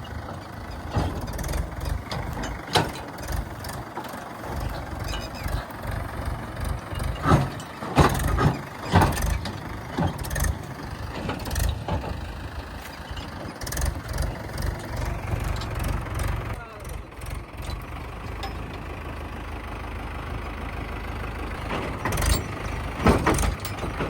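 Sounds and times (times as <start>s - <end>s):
diesel machinery engine running: 0.0s - 24.0s
sharp knocks or clanks: 7.0s - 10.6s, 21.6s - 24.0s.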